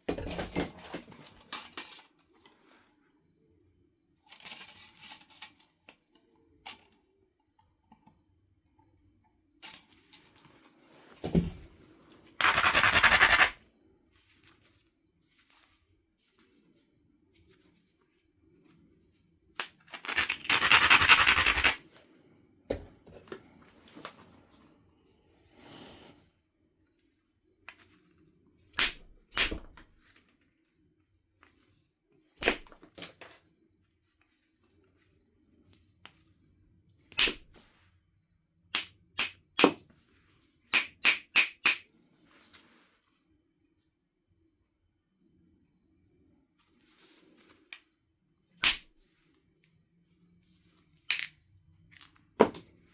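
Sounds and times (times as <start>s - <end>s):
sharp stone click: 40.7s - 41.8s
flint knapping strikes: 40.7s - 41.9s.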